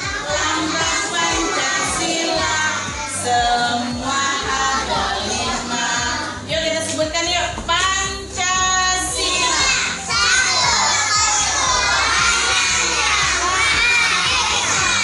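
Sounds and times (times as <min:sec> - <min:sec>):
children singing: 0:00.0 - 0:06.4, 0:09.0 - 0:15.0
song with steady beat: 0:00.0 - 0:15.0
woman singing: 0:00.3 - 0:06.8.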